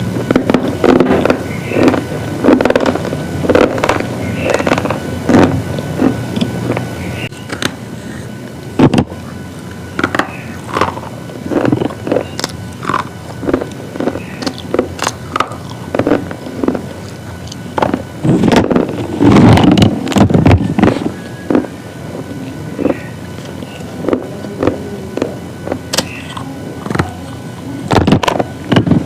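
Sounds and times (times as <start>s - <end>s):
crunchy biting and chewing: 10.0s - 27.2s.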